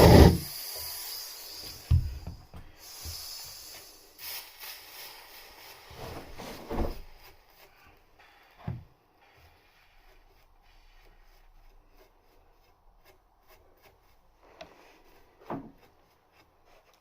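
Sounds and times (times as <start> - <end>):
rubbing and rustling: 5.6 - 8.1, 9.1 - 17.0.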